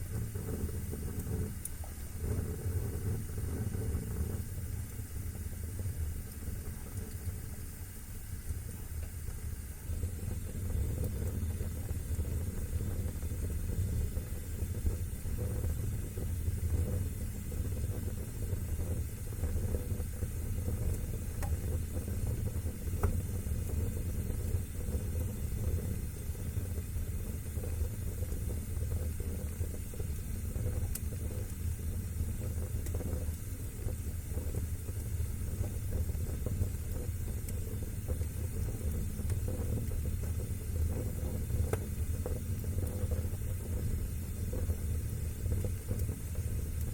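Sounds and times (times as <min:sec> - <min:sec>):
fire crackles and pops: 0:00.0 - 0:46.9
wood fire rumbling: 0:00.0 - 0:46.9.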